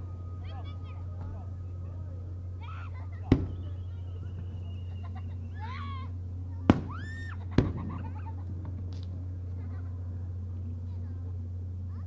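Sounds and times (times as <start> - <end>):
faint crowd voices: 0.0 - 7.8, 9.3 - 12.0
steady low hum: 0.0 - 12.0
firework shells banging: 3.2 - 4.5, 6.7 - 9.1.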